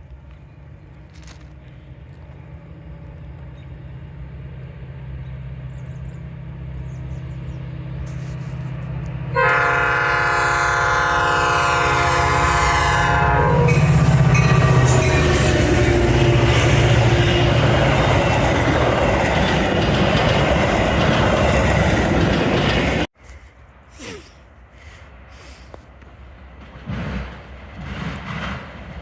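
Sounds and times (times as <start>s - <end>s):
diesel train engine rumble: 0.0s - 29.0s
train horn blast: 9.3s - 18.2s.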